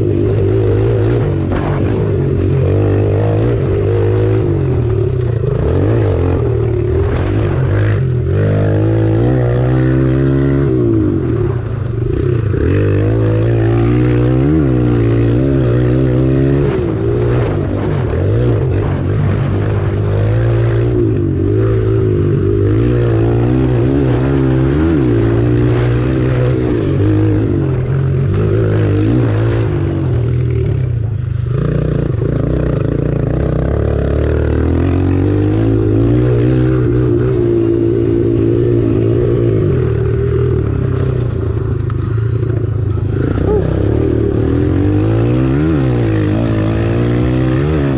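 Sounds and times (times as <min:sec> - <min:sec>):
small motorbike engines revving: 0:00.0 - 0:47.9
steady low drone: 0:00.0 - 0:47.9.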